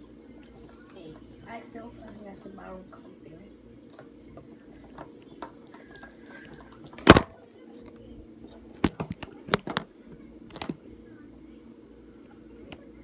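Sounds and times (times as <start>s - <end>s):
objects knocking and clicking: 3.9s - 7.4s.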